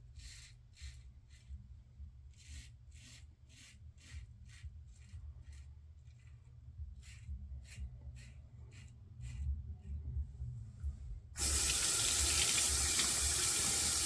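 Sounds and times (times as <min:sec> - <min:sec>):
razor scraping stubble: 0:02.3 - 0:09.4.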